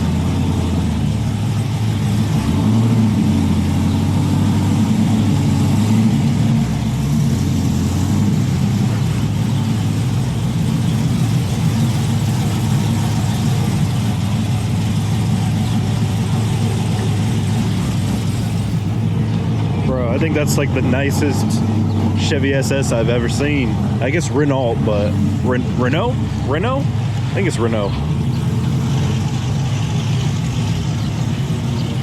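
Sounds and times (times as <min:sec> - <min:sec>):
car engine running while driving: 0:00.0 - 0:32.0.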